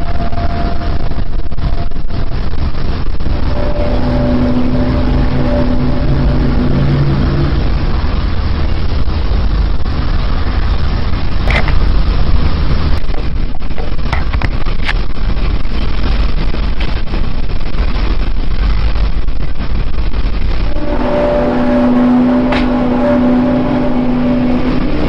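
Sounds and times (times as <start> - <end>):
droning tone: 0.0 - 13.6, 19.6 - 25.0
low rumbling roar: 0.0 - 25.0.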